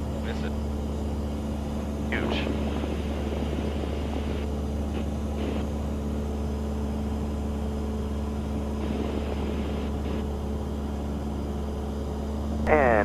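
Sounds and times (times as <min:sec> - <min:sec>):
propeller plane engine droning: 0:00.0 - 0:13.0.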